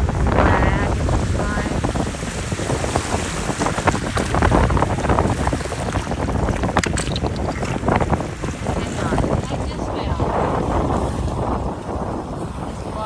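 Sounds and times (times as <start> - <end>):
waves washing in: 0.0 - 13.0
wind buffeting microphone: 0.0 - 13.0
short clicks and splashes: 5.9 - 7.9.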